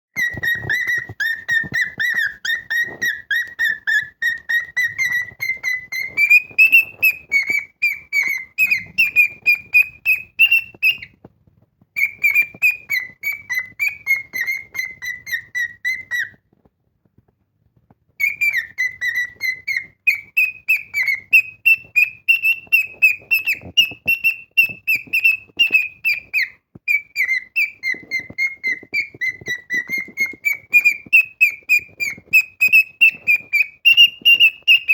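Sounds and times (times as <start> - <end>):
cockatiel whistling song: 0.2 - 11.2, 11.9 - 16.6, 18.1 - 34.9.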